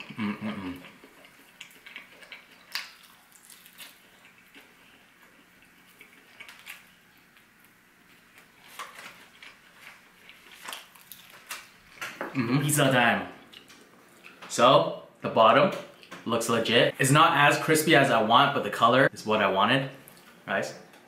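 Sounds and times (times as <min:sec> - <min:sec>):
person chewing food: 0:00.0 - 0:12.4, 0:13.4 - 0:14.4.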